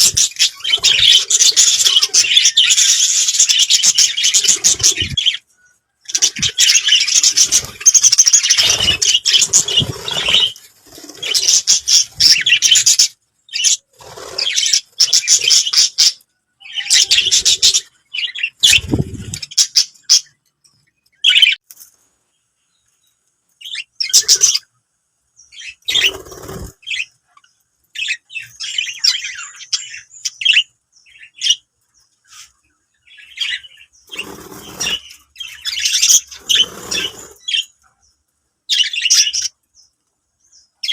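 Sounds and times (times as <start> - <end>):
budgerigars chattering and chirping: 0.0 - 5.5, 6.1 - 20.3, 23.6 - 24.7, 25.5 - 37.9, 38.7 - 39.7
wing flutter: 6.1 - 16.0, 25.9 - 27.0, 34.1 - 37.6.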